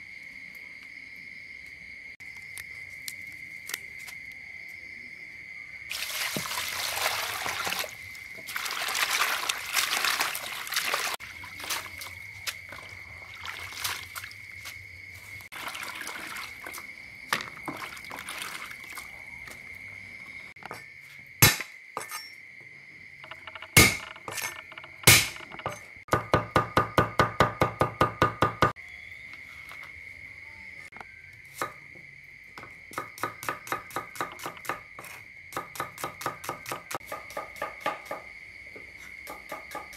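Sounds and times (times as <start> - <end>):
water splashing onto leaves: 5.9 - 19.2
cleaver chopping on wooden board: 21.4 - 21.7, 23.7 - 24.4, 25.0 - 28.8
loud knocks: 23.2 - 28.7.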